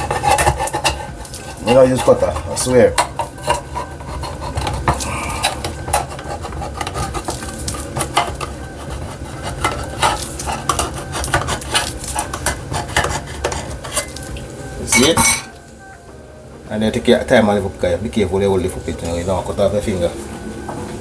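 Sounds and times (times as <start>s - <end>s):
metal utensils knocking on pot: 0.0s - 14.3s, 14.9s - 15.6s.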